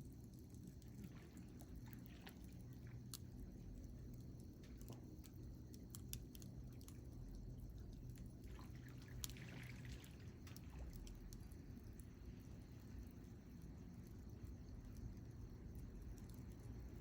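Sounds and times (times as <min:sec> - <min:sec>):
low steady rumble: 0:00.0 - 0:17.0
campfire crackling and popping: 0:04.1 - 0:07.0.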